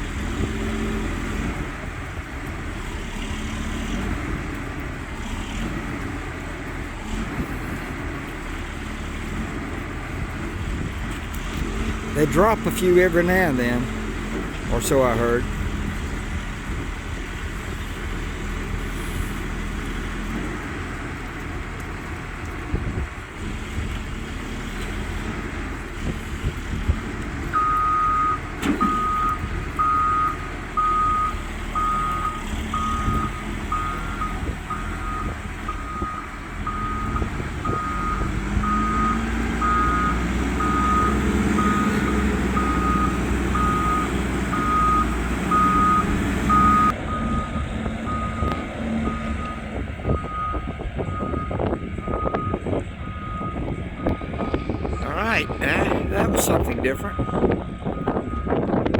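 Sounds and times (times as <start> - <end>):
heavy machine engine rumbling: 0.0 - 58.9
reversing alarm beeping: 27.6 - 55.1, 56.6 - 58.8.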